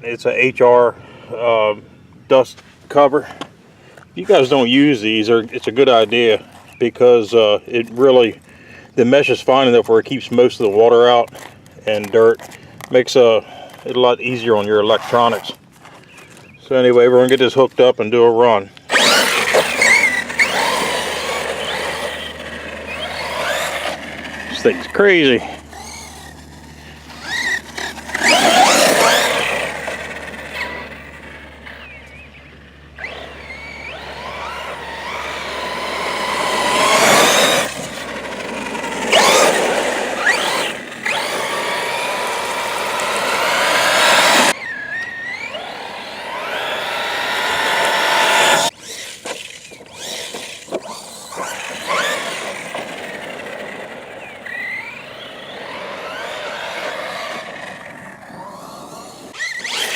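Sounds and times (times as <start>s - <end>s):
tyres on dirt: 0.0s - 59.9s
electric motor whining: 18.9s - 59.9s.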